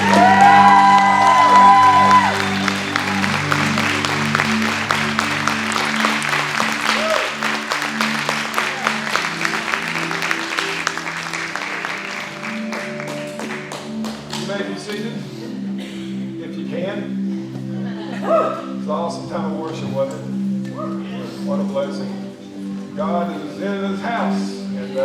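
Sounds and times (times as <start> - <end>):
congregation applauding: 0.0 - 15.4
band playing soft chords: 0.0 - 16.1.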